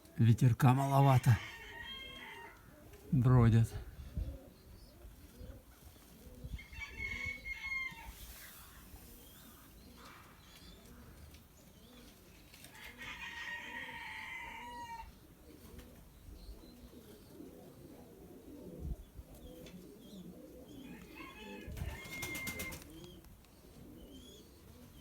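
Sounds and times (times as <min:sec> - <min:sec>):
pigeons cooing: 0:00.0 - 0:00.2, 0:00.8 - 0:25.0
rooster crowing: 0:01.1 - 0:02.6, 0:06.6 - 0:08.2, 0:12.7 - 0:15.1, 0:20.8 - 0:22.8.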